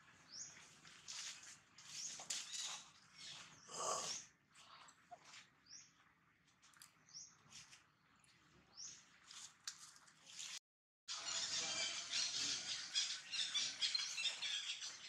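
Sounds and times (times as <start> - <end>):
bird chirping: 11.1 - 15.0.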